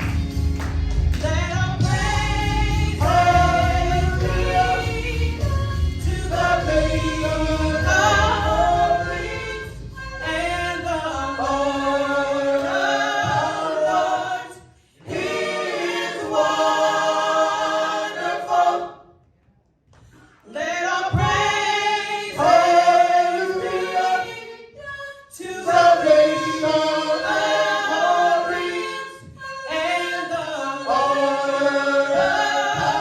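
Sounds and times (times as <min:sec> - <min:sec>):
low musical accompaniment: 0:00.0 - 0:14.3
gospel choir singing: 0:00.0 - 0:19.2, 0:20.4 - 0:33.0.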